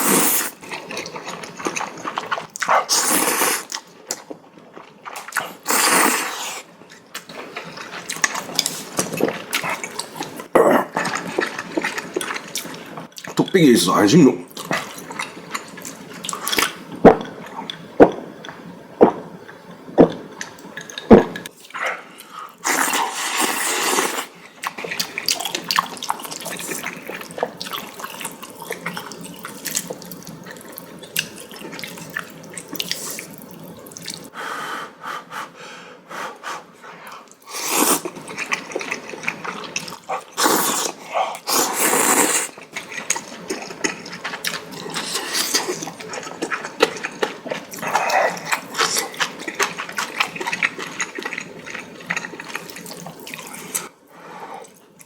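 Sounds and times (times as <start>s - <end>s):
person slurping noodles: 0.0s - 0.6s, 2.2s - 3.8s, 5.4s - 6.7s, 22.6s - 24.4s, 37.4s - 39.0s, 39.8s - 42.6s.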